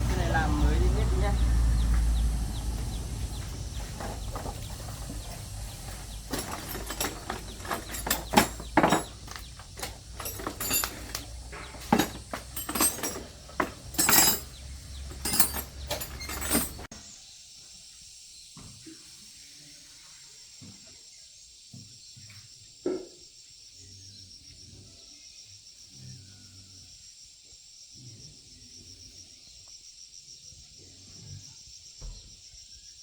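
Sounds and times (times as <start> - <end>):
metal tools clinking and clanking: 3.4 - 16.9.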